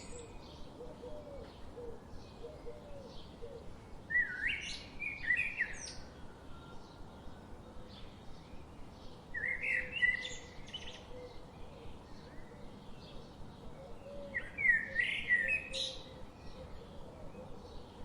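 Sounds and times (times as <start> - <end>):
faint bird chirps: 0.0 - 0.5.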